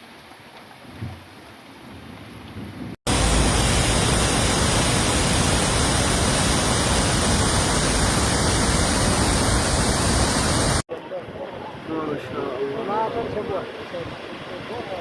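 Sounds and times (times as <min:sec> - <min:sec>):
rain: 0:00.0 - 0:15.0
floodwater rushing: 0:03.1 - 0:10.9, 0:12.1 - 0:15.0.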